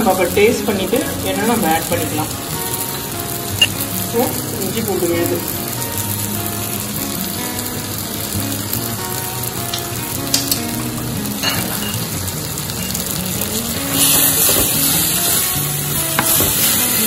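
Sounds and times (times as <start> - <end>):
masala sizzling in a pot: 0.0 - 17.0
spatula knocks: 16.2 - 16.8.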